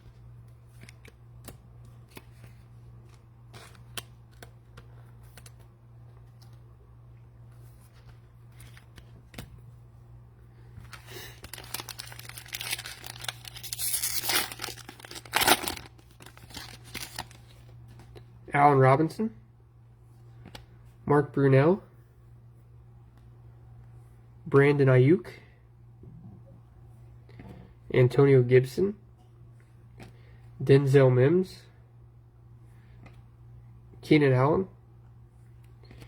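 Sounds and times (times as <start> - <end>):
plastic wrapper crinkling and tearing: 10.8 - 17.7.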